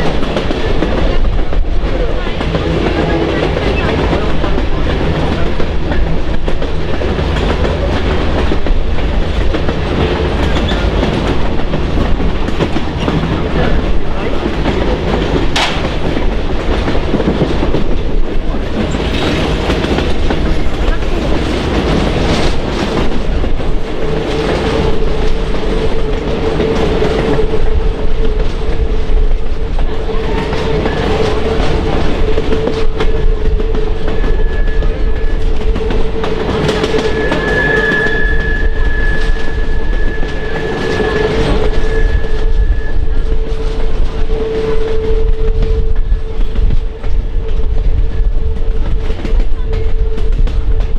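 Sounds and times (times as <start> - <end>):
train rumbling on rails: 0.0 - 50.9
wheels clicking over rail joints: 2.4 - 34.6
steady whining tone: 18.6 - 50.8.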